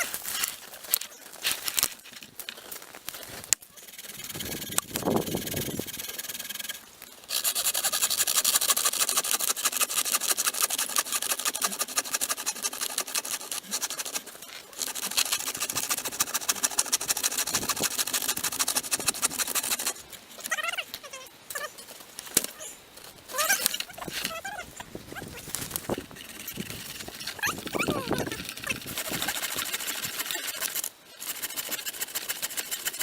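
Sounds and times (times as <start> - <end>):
hand saw cutting wood: 4.0 - 20.0, 25.8 - 33.0.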